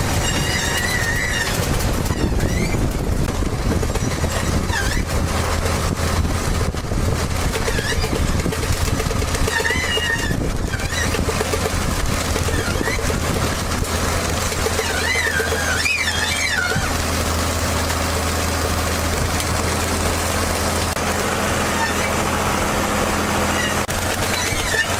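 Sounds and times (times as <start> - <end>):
high-pitched squeals: 0.0 - 3.0, 7.5 - 13.6, 14.2 - 17.2, 21.5 - 24.9
heavy machine engine clattering: 0.0 - 24.9.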